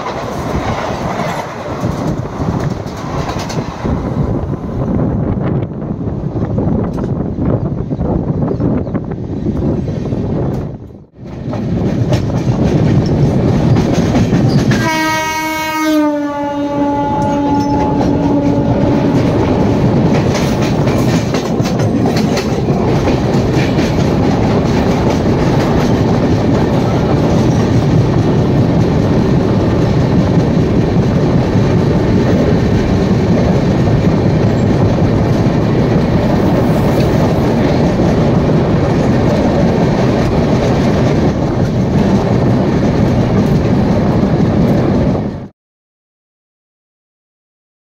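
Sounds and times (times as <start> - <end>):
wheels clacking over rail joints: 0.0 - 4.1, 11.2 - 14.9, 17.2 - 43.6
passing train: 0.0 - 45.5
train wheels rumbling on track: 0.0 - 45.5
train horn: 14.7 - 19.7.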